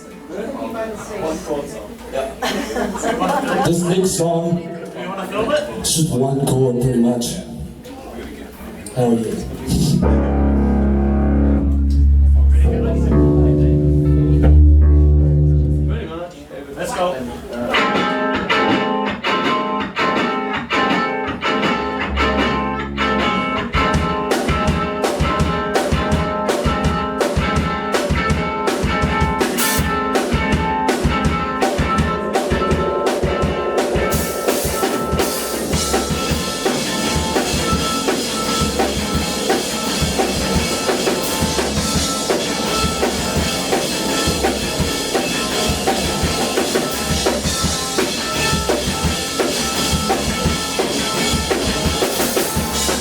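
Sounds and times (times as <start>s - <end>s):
electric guitar: 9.4s - 16.0s, 17.5s - 53.0s
drum kit beat: 9.4s - 16.1s, 17.7s - 53.0s.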